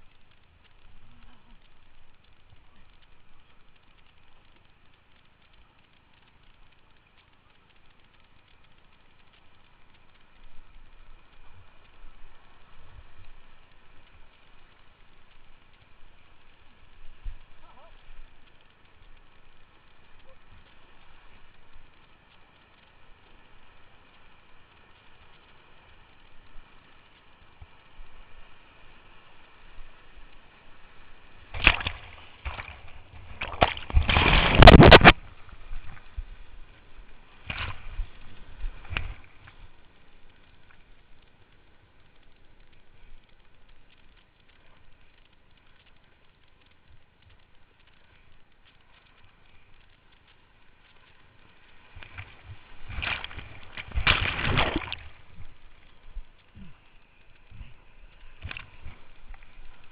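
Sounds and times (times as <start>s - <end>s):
whitewater splashing: 30.0s - 40.3s, 51.4s - 59.9s.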